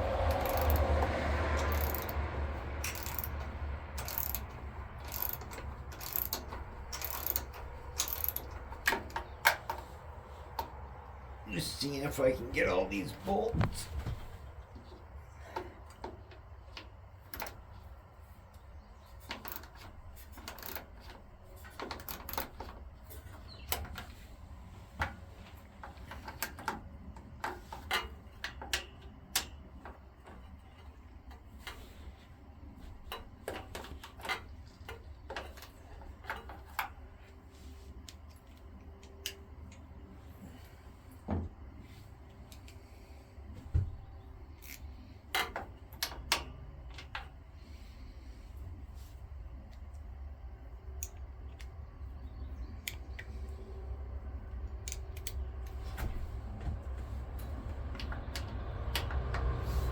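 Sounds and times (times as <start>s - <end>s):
hand tools clicking on metal: 0.1s - 9.8s.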